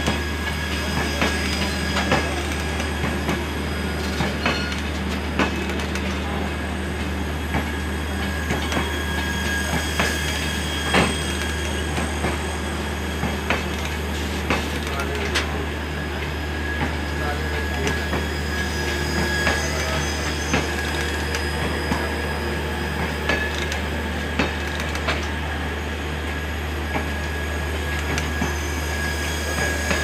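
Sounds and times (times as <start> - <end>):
train coaches rumbling past: 0.0 - 30.0
thin wheel squeal: 17.6 - 23.0, 28.2 - 30.0.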